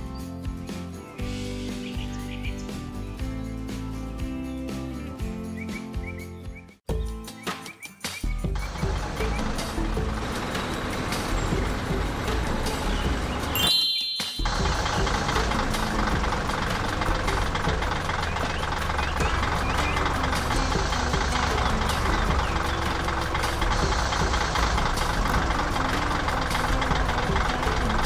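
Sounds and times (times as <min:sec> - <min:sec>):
heavy vehicle engine rumbling: 0:08.6 - 0:13.7, 0:14.4 - 0:28.0.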